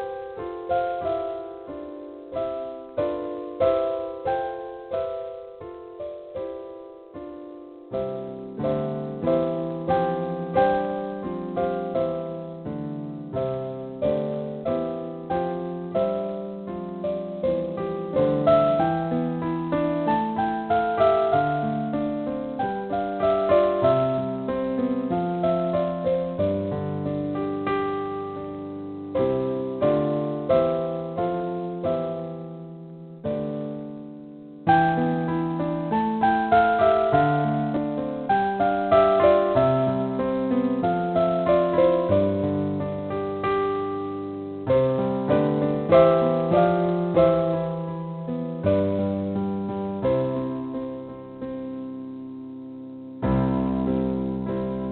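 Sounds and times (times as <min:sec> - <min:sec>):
background piano music: 0:00.0 - 0:54.9.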